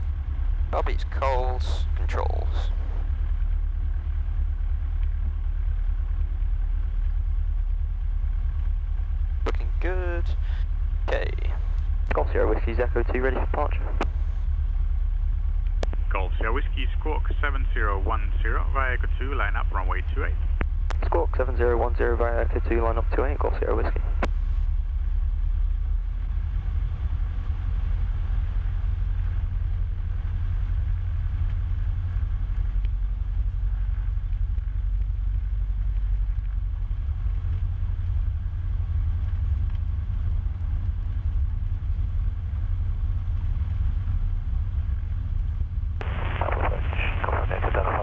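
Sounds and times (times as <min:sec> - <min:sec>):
aircraft engine droning: 0:00.0 - 0:48.0
radio speech: 0:00.8 - 0:03.0, 0:09.5 - 0:14.1, 0:15.8 - 0:24.3, 0:46.0 - 0:48.0.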